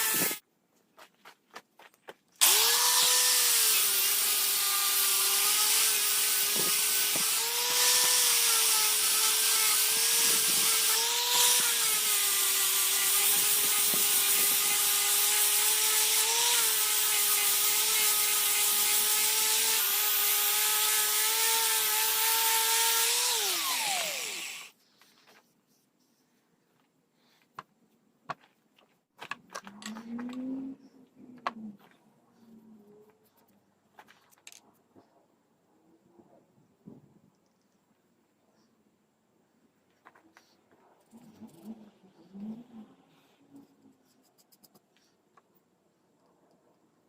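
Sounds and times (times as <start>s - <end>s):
electric power tool motor whining: 0.0s - 0.4s, 2.4s - 24.7s.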